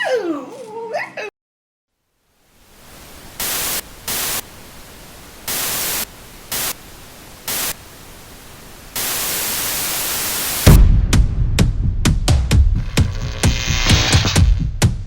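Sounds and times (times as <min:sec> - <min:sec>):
white noise static hiss: 0:01.9 - 0:10.7.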